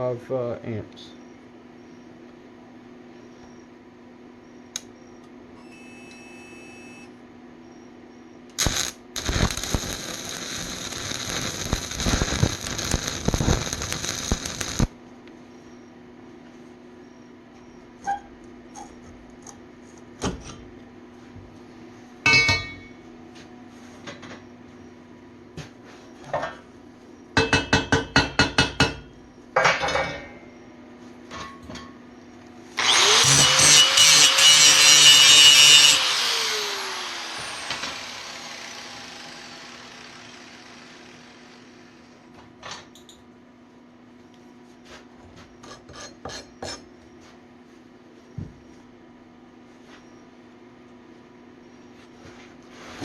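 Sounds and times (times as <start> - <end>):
angle grinder on steel: 8.6 - 14.9, 32.8 - 42.1
low hum: 8.6 - 14.9.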